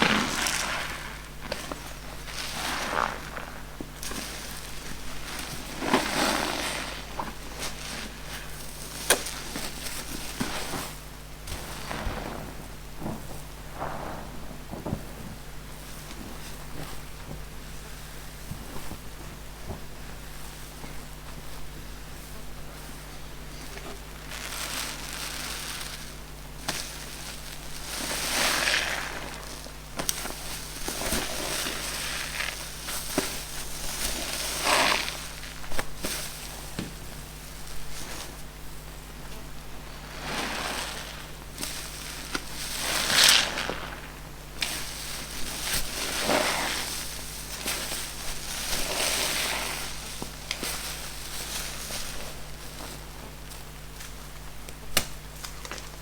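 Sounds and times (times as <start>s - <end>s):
sponges being squeezed: 5.7s - 8.2s.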